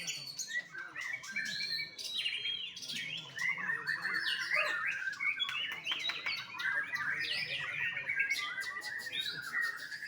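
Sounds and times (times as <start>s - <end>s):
bird singing whistles and trills: 0.0s - 10.0s.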